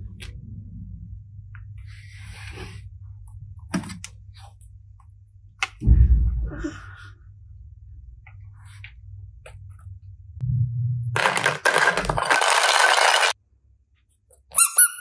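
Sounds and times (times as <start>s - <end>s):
low steady hum: 0.0s - 12.4s
heavy thud: 5.8s - 6.7s
plastic toys clicking: 11.2s - 13.4s.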